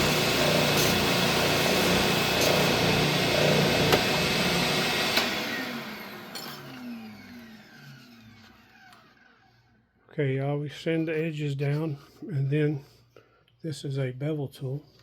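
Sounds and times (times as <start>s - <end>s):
oscillating sander running: 0.0s - 9.0s.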